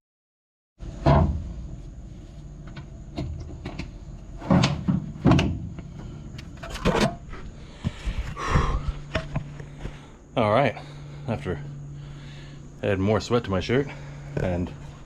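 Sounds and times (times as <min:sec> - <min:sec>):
steady low hum: 0:00.8 - 0:15.0
sharp knocks and clunks: 0:01.0 - 0:01.7, 0:02.6 - 0:06.0.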